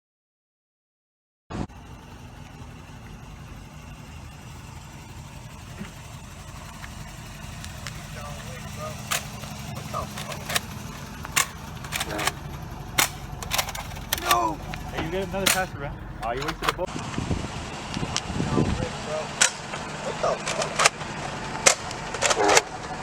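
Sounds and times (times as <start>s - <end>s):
car engine hum and road noise: 1.6s - 23.0s
toy blaster clicks: 6.5s - 16.8s.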